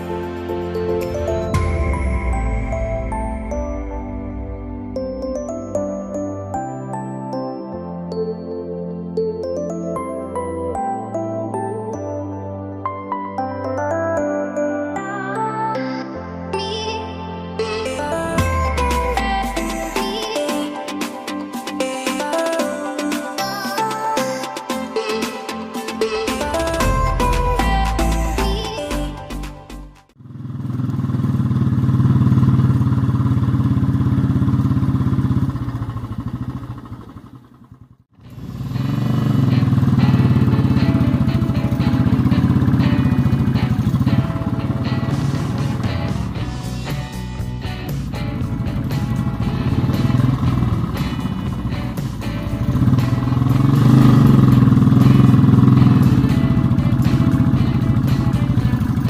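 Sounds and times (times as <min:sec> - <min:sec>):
music playing: 0:00.0 - 0:30.2, 0:39.6 - 0:59.0
motorcycle engine running: 0:30.1 - 0:59.0.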